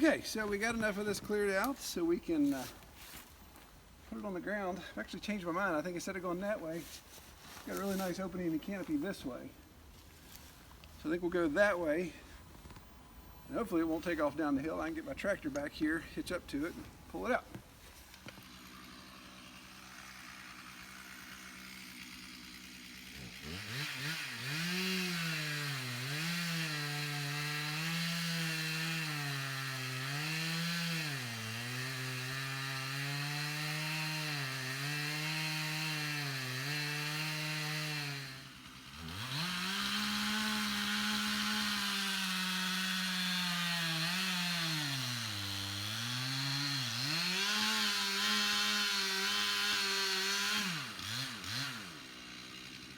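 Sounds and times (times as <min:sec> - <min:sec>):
chainsaw cutting wood: 0:16.5 - 0:52.9.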